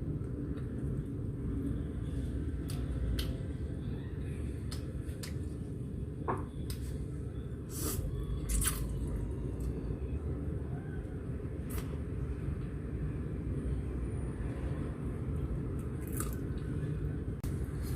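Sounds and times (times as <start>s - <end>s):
chewing and wet mouth noises: 8.4s - 9.0s, 15.6s - 16.9s.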